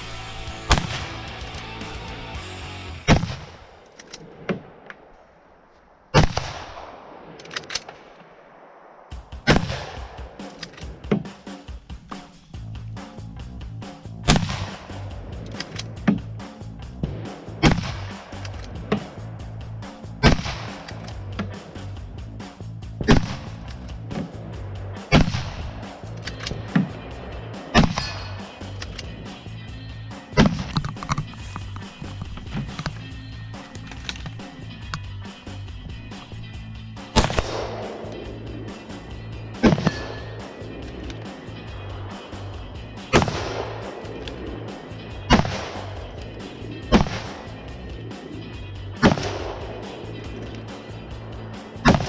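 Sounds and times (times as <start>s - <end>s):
background music: 0.0s - 3.4s, 12.6s - 52.0s
rifle shots: 0.2s - 1.3s, 37.2s - 38.0s
rifle shots with echo: 37.2s - 38.0s.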